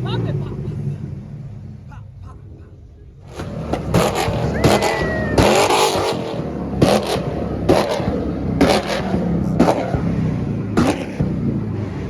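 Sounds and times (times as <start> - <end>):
car engine drone: 0.0 - 12.0
sharp exhaust pops: 3.2 - 11.8.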